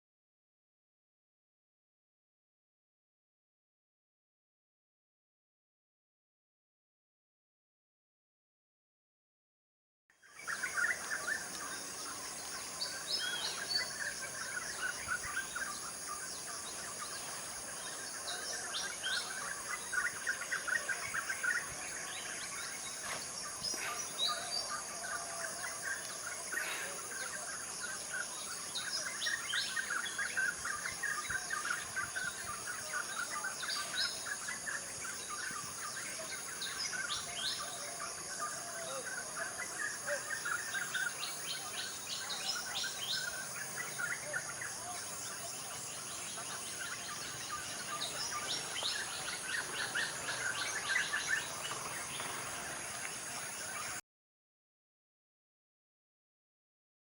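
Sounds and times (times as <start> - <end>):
birds chirping and calling: 10.3 - 54.0.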